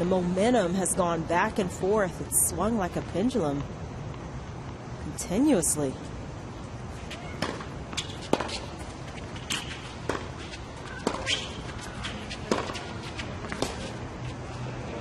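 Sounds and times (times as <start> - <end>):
low murmur of court: 0.0 - 15.0
tennis ball bouncing on court: 7.1 - 14.0.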